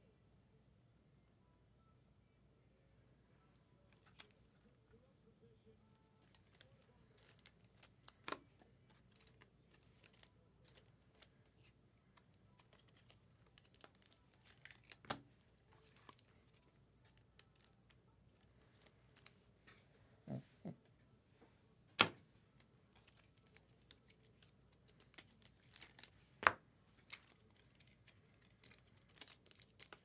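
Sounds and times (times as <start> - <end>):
card packs crinkling: 6.2 - 19.4, 22.0 - 30.0.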